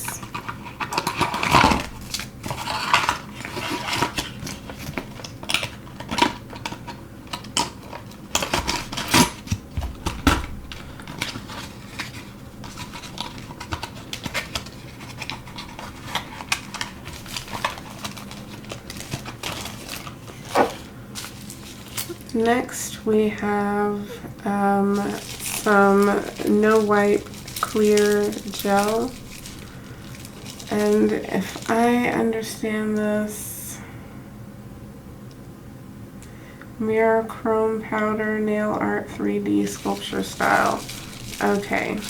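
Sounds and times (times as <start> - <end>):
plastic containers handled on table: 0.1 - 22.3, 24.9 - 31.8.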